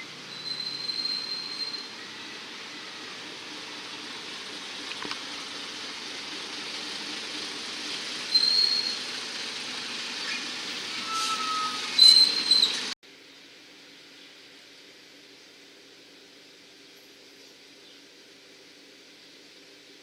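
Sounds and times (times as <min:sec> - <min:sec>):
train wheels squealing: 0:00.0 - 0:04.0, 0:08.1 - 0:13.0
train rumbling on rails: 0:00.0 - 0:13.0
faint hiss: 0:00.0 - 0:20.0.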